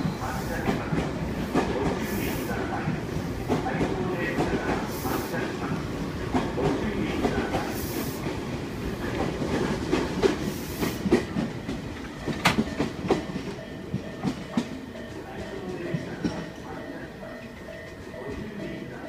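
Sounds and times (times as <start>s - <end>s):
train wheels clattering over joints: 9.0s - 16.6s.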